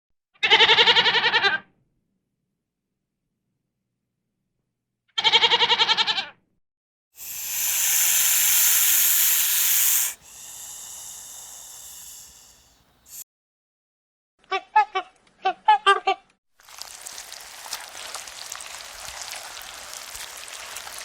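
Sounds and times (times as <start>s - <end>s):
goat bleating: 0.4s - 1.5s, 5.2s - 6.3s
loud hiss: 7.2s - 13.2s.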